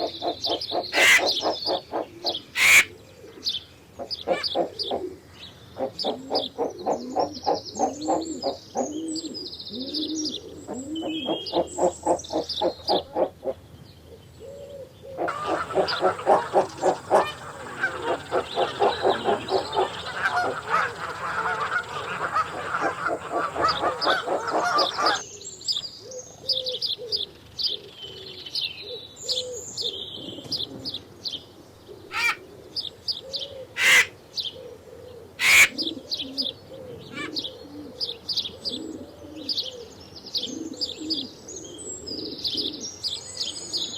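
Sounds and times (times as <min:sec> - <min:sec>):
birds calling rapidly: 0:00.9 - 0:01.5, 0:02.6 - 0:02.9, 0:15.3 - 0:25.2, 0:32.1 - 0:32.4, 0:33.8 - 0:34.1, 0:35.4 - 0:35.8
low soft bird calls: 0:01.0 - 0:01.4, 0:02.6 - 0:02.9, 0:15.3 - 0:25.2, 0:33.8 - 0:34.1
high bird chirps: 0:15.3 - 0:25.2.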